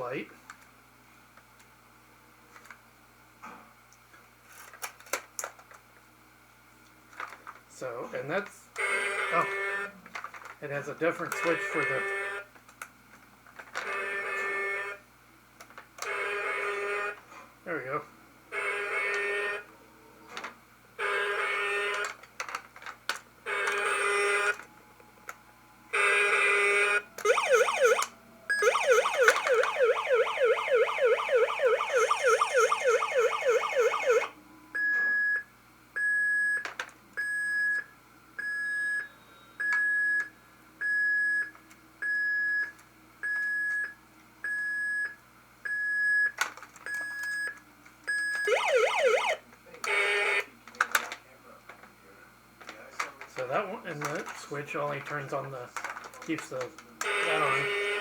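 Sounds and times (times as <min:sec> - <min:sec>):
fast yelping siren: 0:27.2 - 0:34.4, 0:48.4 - 0:49.4
toy electronic tone blasts: 0:27.3 - 0:34.3, 0:48.5 - 0:49.4.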